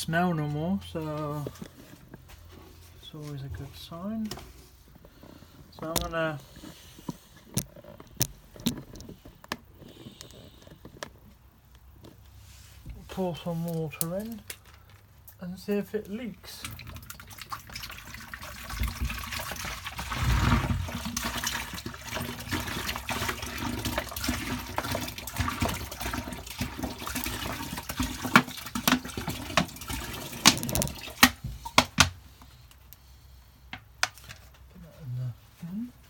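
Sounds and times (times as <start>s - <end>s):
water pouring: 16.4s - 31.3s.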